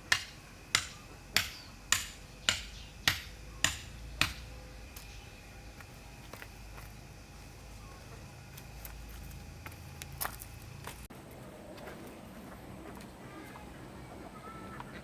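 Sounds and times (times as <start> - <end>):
sharp ringing knocks: 0.1 - 4.5.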